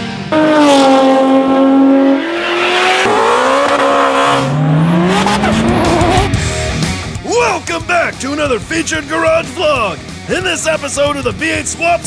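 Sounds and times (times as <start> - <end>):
car engine revving hard: 0.3 - 6.8.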